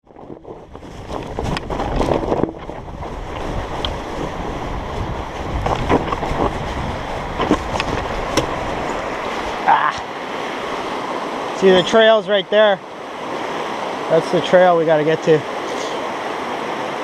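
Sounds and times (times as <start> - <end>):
wind buffeting microphone: 0.0 - 11.6
river water rushing: 0.2 - 17.0.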